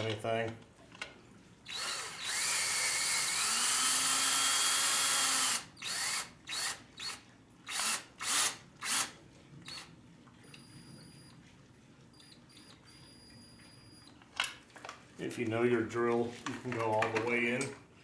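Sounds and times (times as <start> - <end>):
cordless drill driving screw: 1.7 - 9.9.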